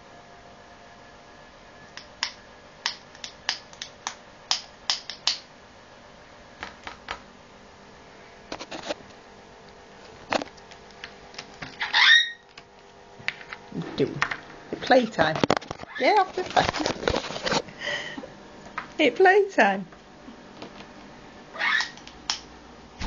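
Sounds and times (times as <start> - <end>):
parrot clicking and tapping: 2.2 - 5.4
parrot loud call: 11.8 - 12.5, 21.5 - 22.0.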